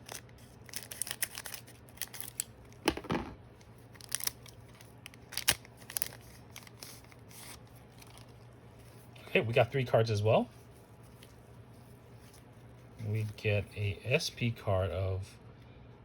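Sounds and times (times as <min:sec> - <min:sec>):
wrapper crinkling: 0:00.0 - 0:03.0, 0:03.6 - 0:09.0
card pack wrapper tearing: 0:00.0 - 0:03.1, 0:03.8 - 0:08.4.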